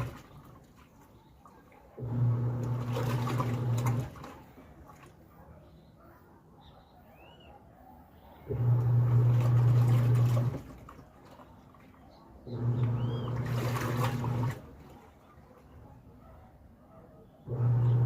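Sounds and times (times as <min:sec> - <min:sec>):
washing machine motor humming: 0:00.0 - 0:00.6, 0:01.9 - 0:05.0, 0:08.5 - 0:15.6, 0:17.4 - 0:18.0
water sloshing: 0:00.0 - 0:05.5, 0:08.6 - 0:16.2.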